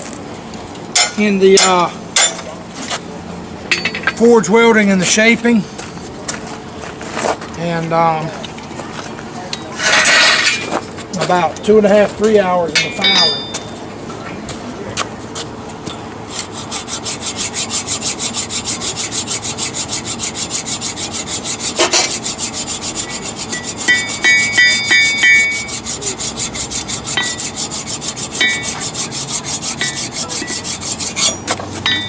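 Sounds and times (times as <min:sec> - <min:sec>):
ringing metallic tones: 0:03.7 - 0:04.6, 0:12.7 - 0:13.9, 0:23.4 - 0:25.9, 0:27.0 - 0:32.0
file rasping on steel: 0:16.3 - 0:32.0.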